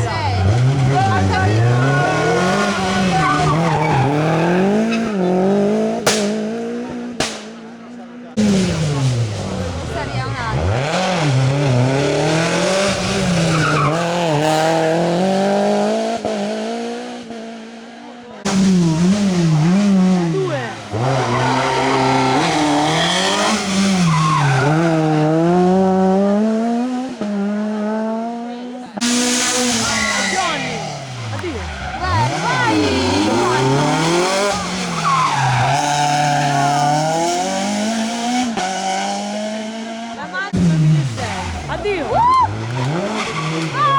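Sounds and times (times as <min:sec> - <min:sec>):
tyres squealing and skidding: 0:00.0 - 0:05.8, 0:08.4 - 0:15.1, 0:18.5 - 0:25.8, 0:29.0 - 0:39.2, 0:40.1 - 0:43.9
another car engine: 0:00.0 - 0:43.9
rally car engine revving: 0:00.0 - 0:43.9
tyre squeal: 0:29.2 - 0:36.7.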